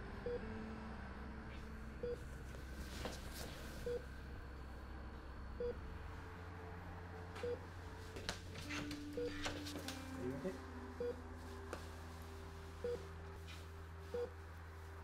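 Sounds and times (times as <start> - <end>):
steady low hum: 0.0 - 15.0
electronic monitor beeps: 3.8 - 4.8, 5.5 - 5.9, 7.4 - 7.6, 8.6 - 10.4, 11.0 - 11.2, 14.1 - 14.4.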